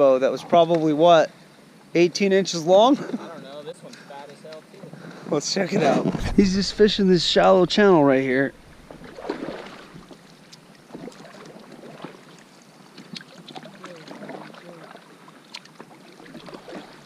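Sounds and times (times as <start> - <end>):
paddle splashing in water: 8.5 - 17.0.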